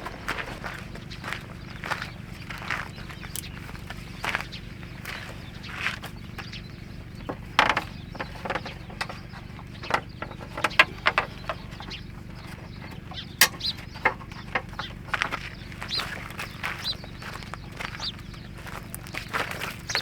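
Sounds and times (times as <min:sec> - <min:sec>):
steady low hum: 0:00.0 - 0:20.0
sharp knocks and clicks: 0:07.2 - 0:15.5.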